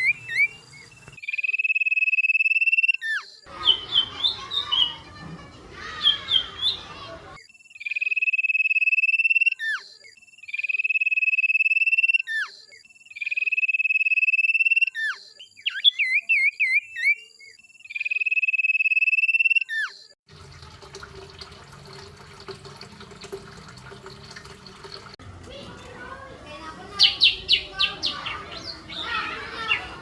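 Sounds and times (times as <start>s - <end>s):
songbird high trill: 0.0s - 1.2s, 3.5s - 5.0s, 5.9s - 7.0s, 27.0s - 30.0s
rapid bird warbling: 0.0s - 5.0s, 26.9s - 30.0s.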